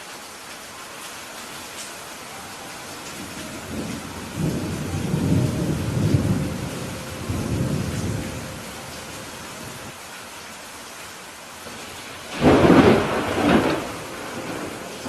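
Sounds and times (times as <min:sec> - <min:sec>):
steady rain: 0:00.0 - 0:15.0
thunder rumble: 0:02.9 - 0:09.9, 0:11.8 - 0:15.0.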